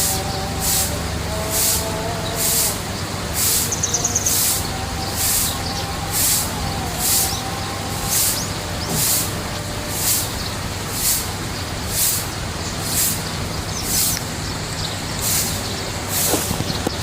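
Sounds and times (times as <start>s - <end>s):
low steady hum: 0.0s - 17.0s
pulsing high hiss: 0.0s - 17.0s
rising bird chirps: 0.0s - 17.0s
bird trill: 2.2s - 9.3s.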